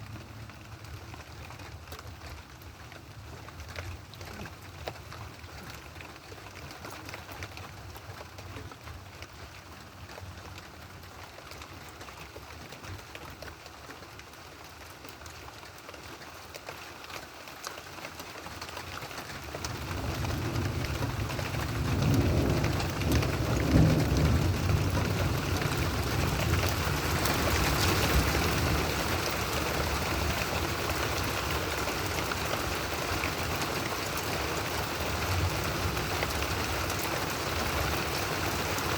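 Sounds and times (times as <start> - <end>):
steady rain: 0.0 - 38.9
low roll of thunder: 19.7 - 30.8.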